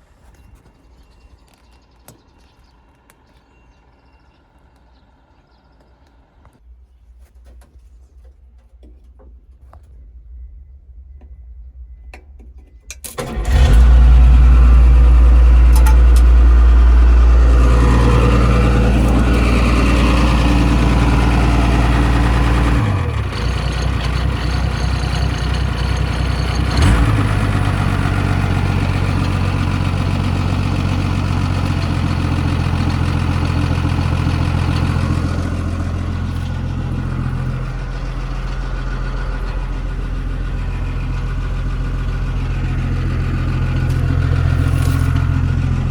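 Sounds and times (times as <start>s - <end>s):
excavator diesel engine running: 13.2s - 45.9s.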